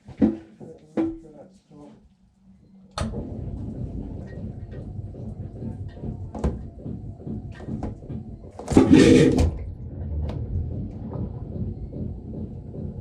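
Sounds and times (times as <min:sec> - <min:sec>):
toilet vacuum pump running: 0:03.0 - 0:13.0.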